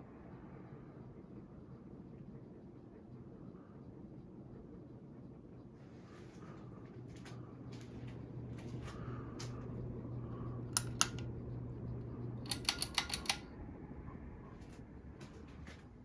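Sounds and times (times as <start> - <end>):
ceiling fan motor hum: 0.0 - 16.0
faint regular ticking: 10.3 - 13.5
sharp clicks: 10.8 - 11.3, 12.4 - 13.5.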